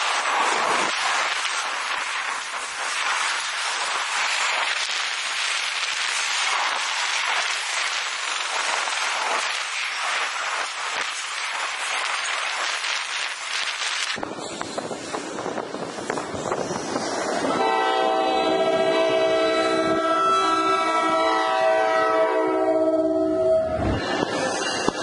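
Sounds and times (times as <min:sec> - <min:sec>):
train cars clicking and clanking: 0:00.0 - 0:17.7, 0:23.7 - 0:25.0
freight train wheels rattling: 0:23.9 - 0:25.0.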